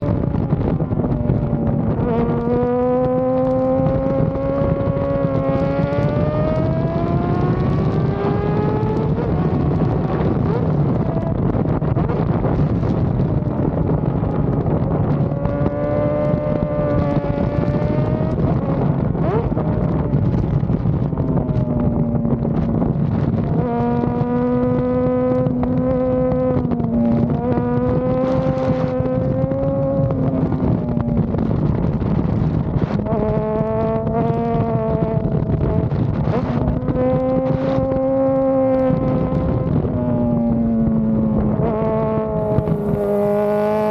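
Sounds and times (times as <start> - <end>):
motorcycle engine revving: 0.0 - 43.9
wind noise on microphone: 0.0 - 43.9.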